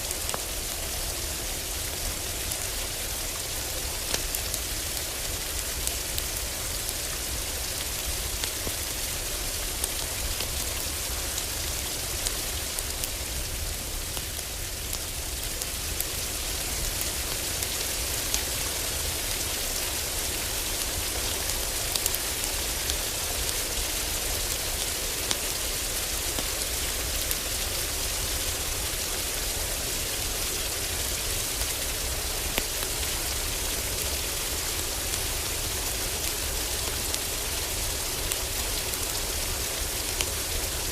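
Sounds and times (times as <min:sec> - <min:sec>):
heavy rain on a roof: 0:00.0 - 0:40.9
wood fire crackling: 0:00.1 - 0:40.9.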